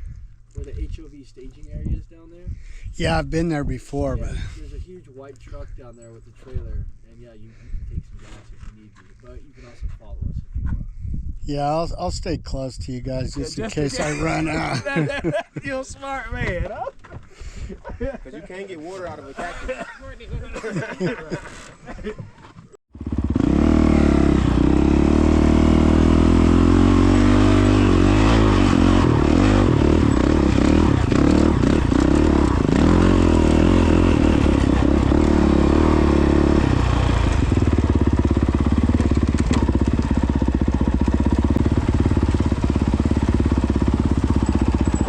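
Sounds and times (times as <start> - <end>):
dirt bike engine running: 22.9 - 45.0.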